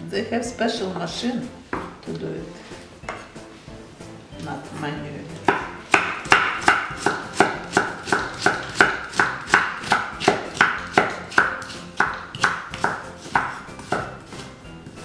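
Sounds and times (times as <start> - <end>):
knife chopping on wooden board: 5.4 - 15.0.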